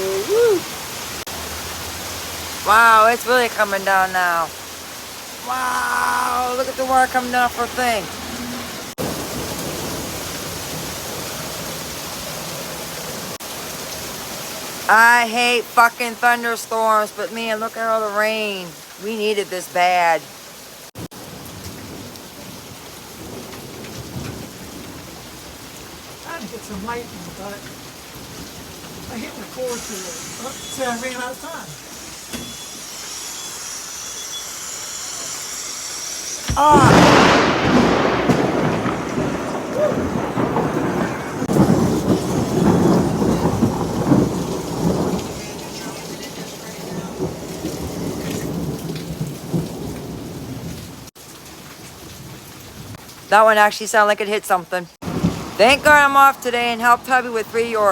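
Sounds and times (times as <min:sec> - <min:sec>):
heavy rain pouring: 0:00.0 - 0:57.9
loud thunderclap: 0:06.6 - 0:11.8, 0:36.5 - 0:50.8, 0:55.0 - 0:56.4.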